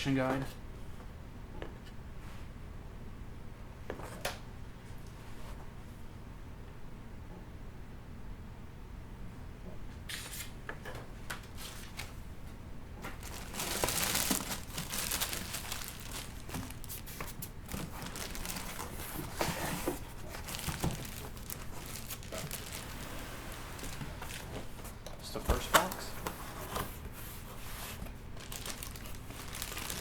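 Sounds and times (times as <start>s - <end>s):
packaging crinkling and tearing: 13.0s - 24.8s, 28.4s - 30.0s.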